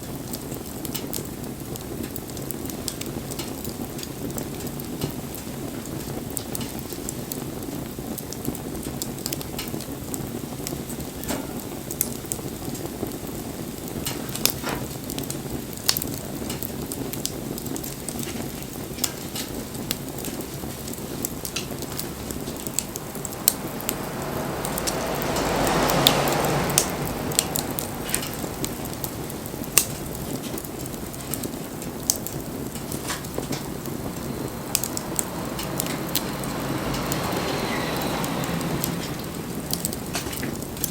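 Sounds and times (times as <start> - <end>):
bonfire crackling and popping: 0.0 - 40.9
broad rushing sound: 20.5 - 40.9.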